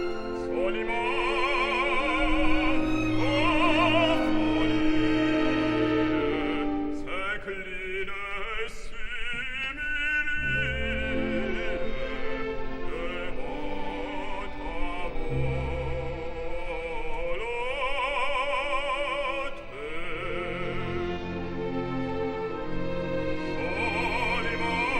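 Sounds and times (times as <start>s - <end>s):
operatic singing voice: 0.0s - 24.9s
orchestra: 0.0s - 24.9s.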